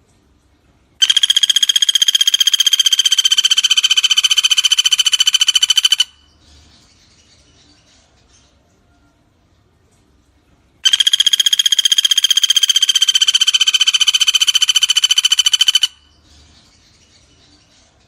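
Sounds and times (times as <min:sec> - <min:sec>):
woodpecker rattling trill: 0:01.0 - 0:06.4, 0:10.8 - 0:16.2.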